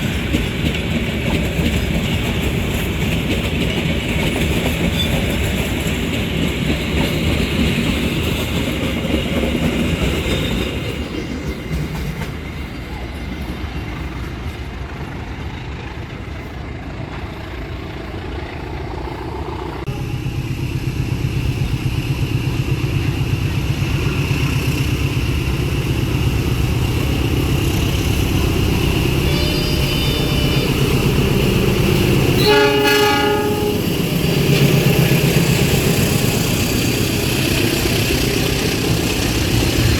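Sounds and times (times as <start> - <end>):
train wheels clacking over rail joints: 0.0 - 19.8
freight train low rumble: 0.0 - 39.9
train horn blast: 29.0 - 34.1.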